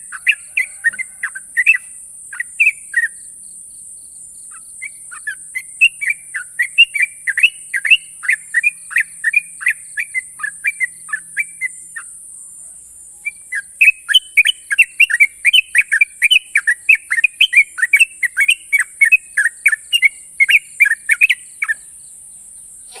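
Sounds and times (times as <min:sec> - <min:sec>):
bird singing sharp whistled notes: 0:04.5 - 0:12.1, 0:13.2 - 0:22.9.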